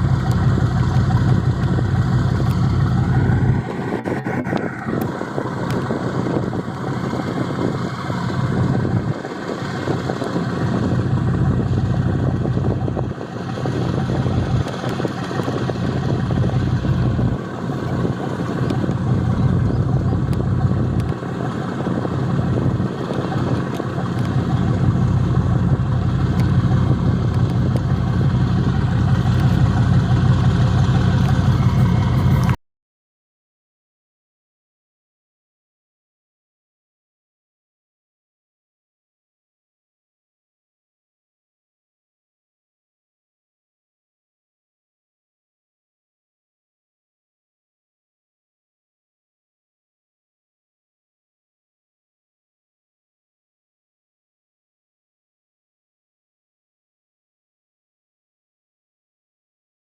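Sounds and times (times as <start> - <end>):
boat engine humming: 0.0 - 32.6.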